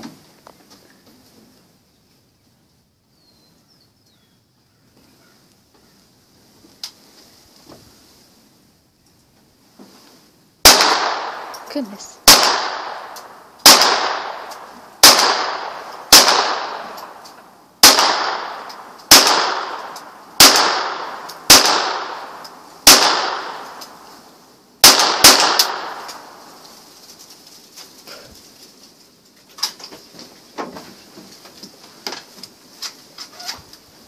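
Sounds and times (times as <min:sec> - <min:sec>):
pistol shots echoing: 0:10.6 - 0:24.0, 0:24.8 - 0:26.6.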